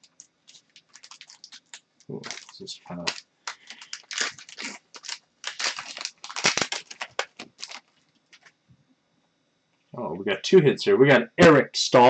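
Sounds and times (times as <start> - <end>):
wrapper crinkling and tearing: 0.0 - 8.5.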